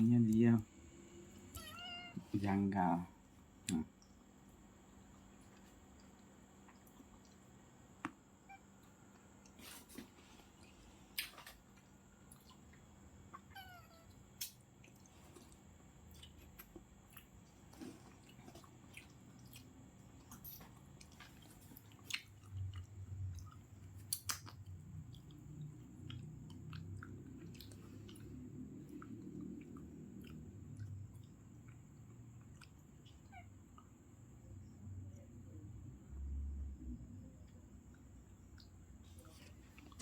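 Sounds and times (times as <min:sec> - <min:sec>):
cat chewing food: 0:14.6 - 0:34.0.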